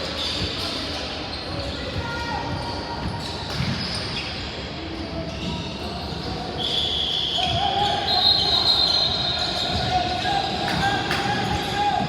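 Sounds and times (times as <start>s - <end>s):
crowd voices echoing: 7.3s - 12.0s.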